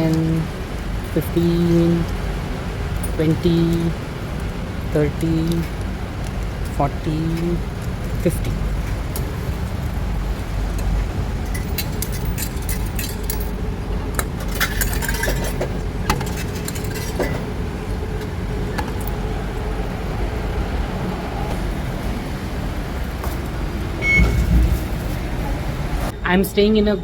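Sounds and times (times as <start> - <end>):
coins clinking: 11.4 - 13.6, 14.2 - 17.5.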